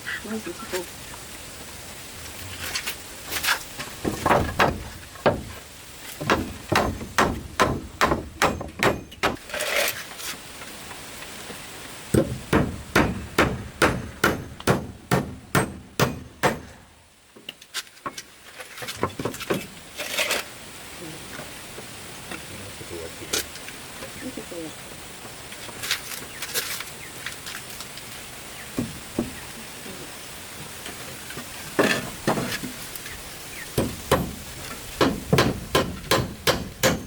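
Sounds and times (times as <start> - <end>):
hammer strikes: 6.2 - 9.4, 12.2 - 16.8, 33.8 - 37.0.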